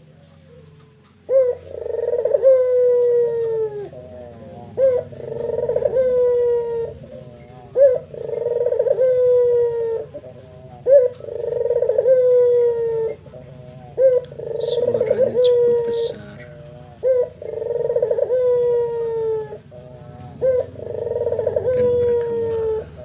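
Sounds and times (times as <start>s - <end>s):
dove cooing: 0.0s - 23.0s.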